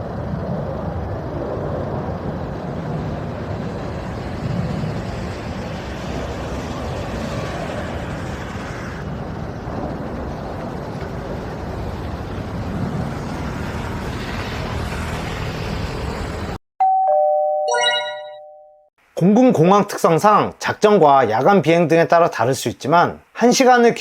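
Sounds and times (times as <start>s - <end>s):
road traffic passing: 0.0s - 16.6s
bright chime: 16.8s - 18.9s.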